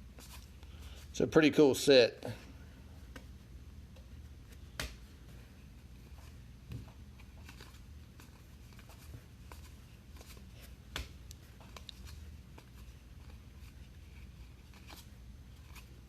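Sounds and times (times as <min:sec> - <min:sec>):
low steady hum: 0:00.0 - 0:16.0
trading cards being flipped: 0:06.0 - 0:16.0.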